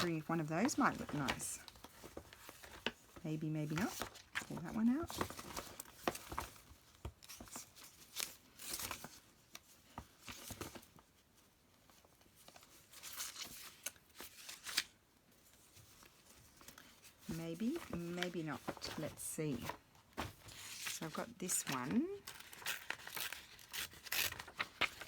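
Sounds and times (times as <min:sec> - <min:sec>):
paper rustling and crinkling: 0:00.0 - 0:25.0.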